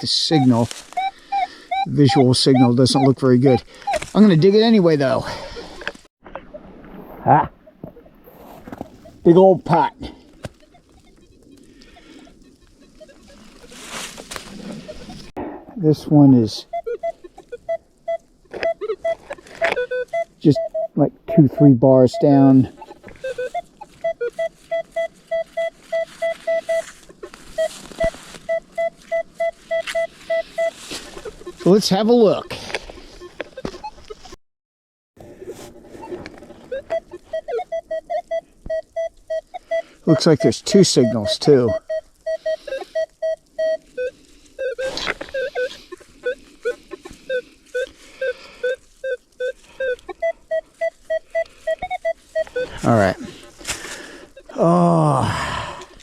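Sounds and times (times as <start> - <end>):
metal detector short beeps: 0.0 - 5.4, 9.0 - 15.3, 16.2 - 27.0, 27.6 - 34.2, 36.0 - 53.5.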